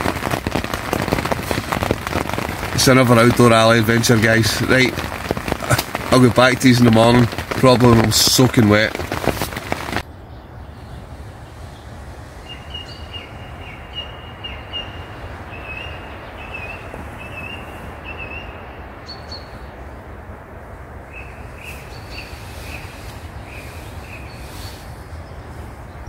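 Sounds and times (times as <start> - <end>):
background hiss: 0.0 - 26.0
bird chirping: 10.0 - 19.9, 21.1 - 26.0.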